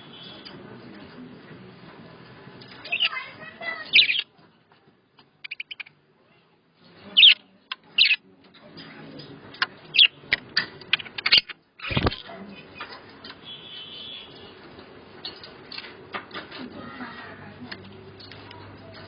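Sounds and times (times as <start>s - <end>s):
budgies chirping: 2.7s - 4.3s, 5.4s - 6.0s, 7.0s - 8.3s, 9.8s - 14.7s.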